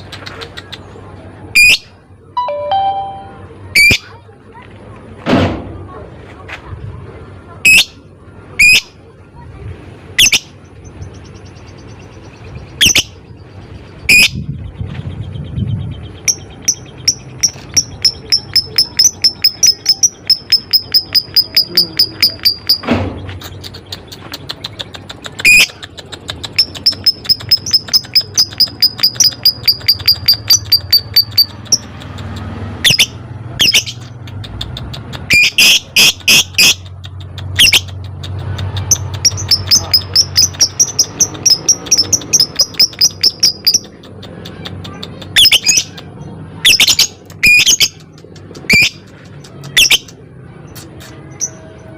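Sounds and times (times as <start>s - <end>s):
lovebird chattering trills: 15.4s - 51.6s.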